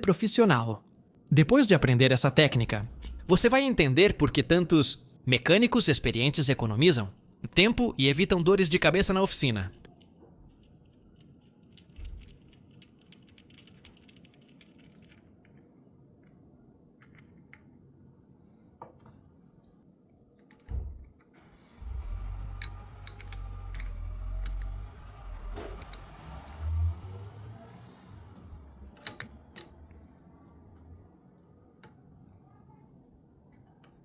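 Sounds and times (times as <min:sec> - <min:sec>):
low rumble: 0:02.5 - 0:04.5
metallic clinks and clicks: 0:09.8 - 0:15.6, 0:22.5 - 0:24.7.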